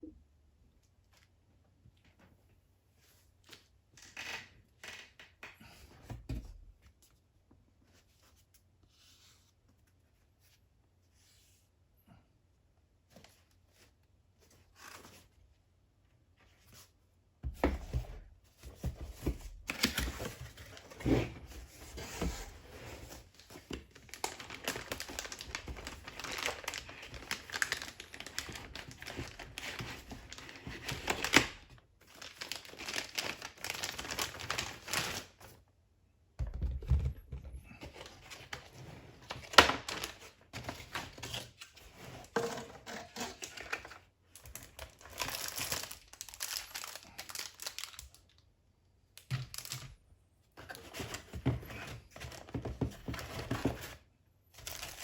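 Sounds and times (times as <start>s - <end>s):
packaging crinkling and rustling: 18.8s - 35.6s, 37.7s - 48.4s, 49.2s - 50.0s, 54.6s - 55.0s.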